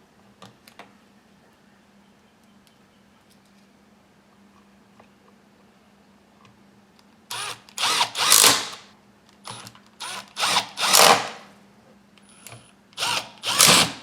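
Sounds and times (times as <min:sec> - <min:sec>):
power drill driving screws: 0:07.3 - 0:08.8, 0:09.5 - 0:11.4, 0:13.0 - 0:14.0.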